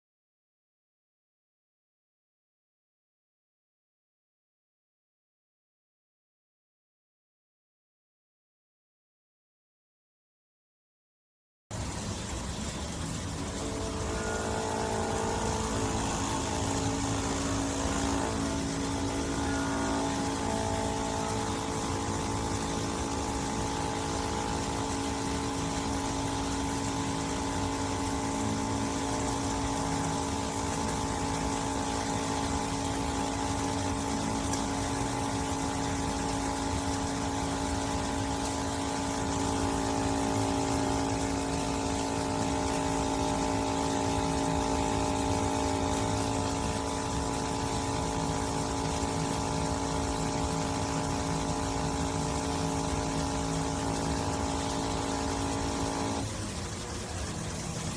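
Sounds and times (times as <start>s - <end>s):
espresso machine pump humming: 11.8s - 57.9s.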